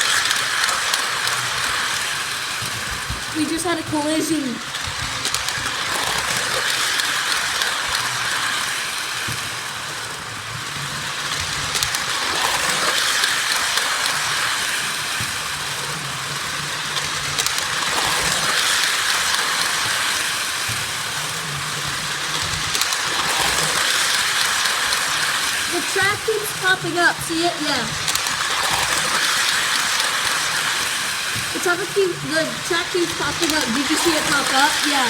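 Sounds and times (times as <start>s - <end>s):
small clicks of toy train: 0.0s - 35.0s
toy train motor whirring and rattling: 0.0s - 35.0s.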